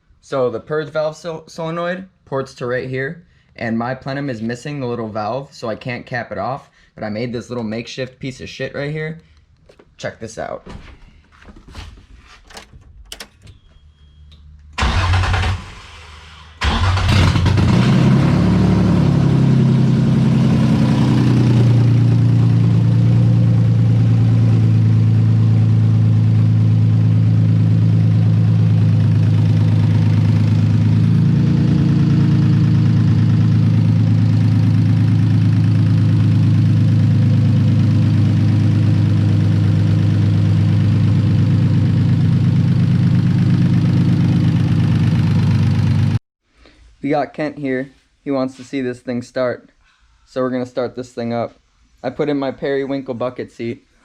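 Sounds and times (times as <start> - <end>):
car engine starting and idling: 12.5 - 46.2.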